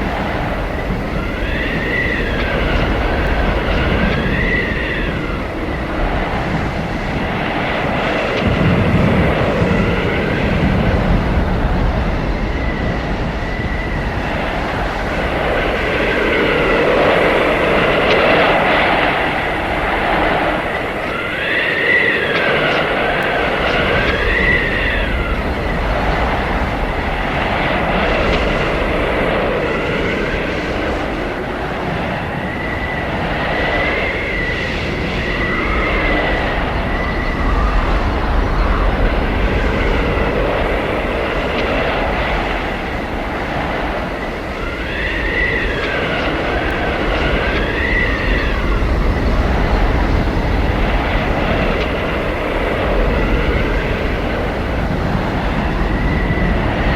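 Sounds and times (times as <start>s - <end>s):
high whistling wind tones: 0.0s - 56.9s
howling blizzard wind: 0.0s - 56.9s.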